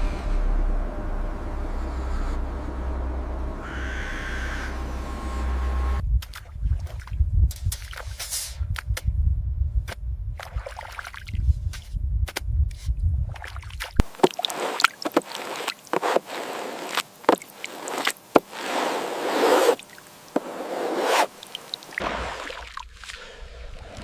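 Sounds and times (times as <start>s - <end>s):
low rumble: 0.0s - 7.6s, 8.6s - 10.4s
water sloshing and splashing: 6.2s - 8.2s, 10.4s - 11.4s, 13.3s - 24.0s.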